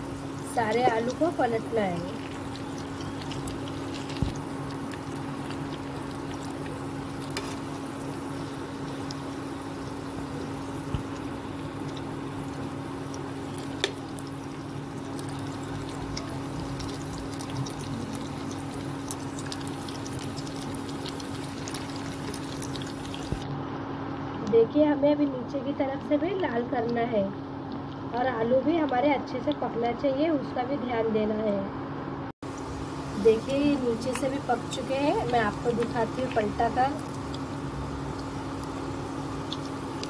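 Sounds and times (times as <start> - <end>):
patties sizzling in a pan: 0.0 - 23.4, 32.5 - 40.0.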